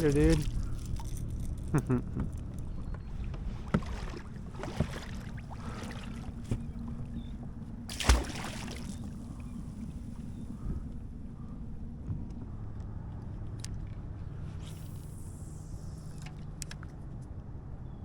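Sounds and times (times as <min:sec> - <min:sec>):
steady low rumble: 0:00.0 - 0:17.7
light knocks on hull: 0:02.9 - 0:07.0
thump and watery swish: 0:03.3 - 0:06.8, 0:07.9 - 0:09.1.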